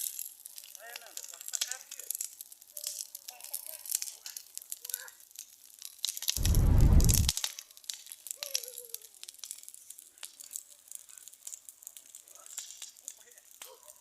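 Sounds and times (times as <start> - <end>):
bonfire crackling: 0.0 - 13.8
loud low rumble: 6.4 - 7.3.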